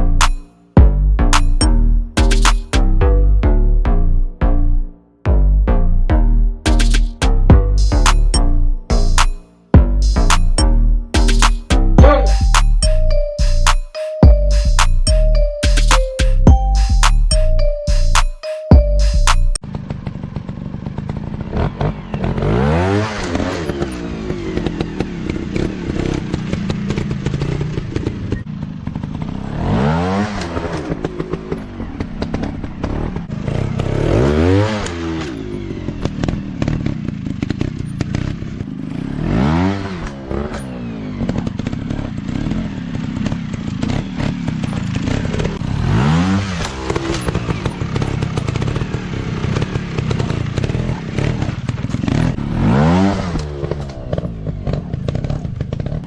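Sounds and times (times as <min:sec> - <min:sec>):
dirt bike engines revving: 0:19.7 - 0:56.0.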